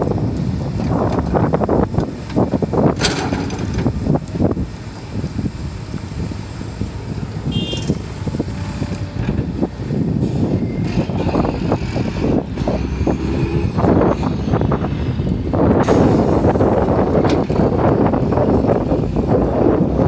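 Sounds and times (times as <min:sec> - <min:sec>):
excavator diesel engine running: 0:00.0 - 0:20.0
machine knocks and clanks: 0:00.8 - 0:04.1.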